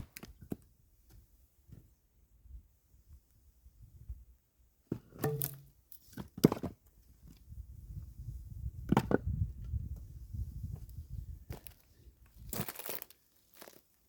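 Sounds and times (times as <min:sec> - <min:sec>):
axe splitting firewood: 0:05.0 - 0:06.8.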